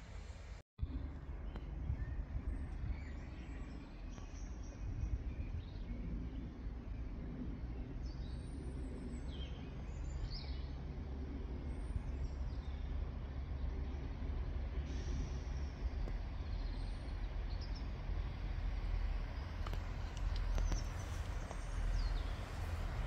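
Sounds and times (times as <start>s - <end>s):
low background rumble: 0.0s - 23.0s
small birds chirping: 11.7s - 23.0s.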